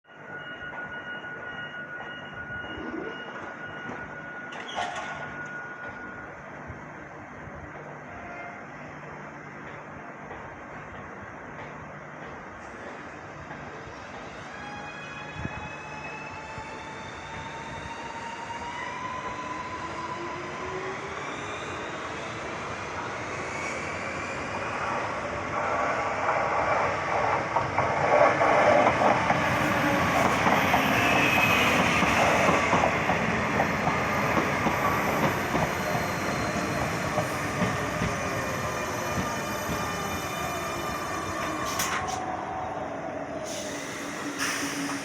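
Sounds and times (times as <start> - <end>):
traction motors whining: 29.2 - 45.0.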